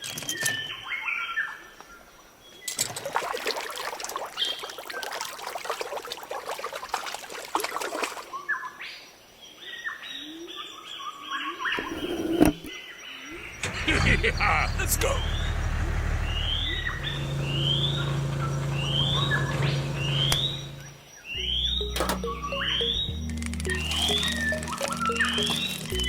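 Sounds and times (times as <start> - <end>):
bird chirps: 16.2 - 26.0
crackling clattering noise: 23.1 - 26.0.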